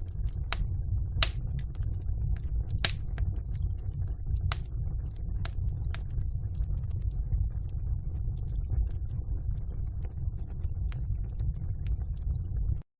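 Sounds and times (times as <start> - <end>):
wood fire crackling: 0.0 - 12.0
sharp pop of fire: 1.2 - 1.4, 2.8 - 3.2.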